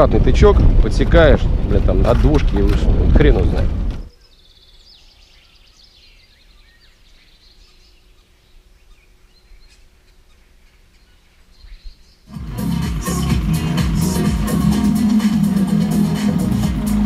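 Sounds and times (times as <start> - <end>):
low outdoor rumble: 0.0 - 4.1
small birds chirping: 3.9 - 12.3
loud music: 12.3 - 17.0.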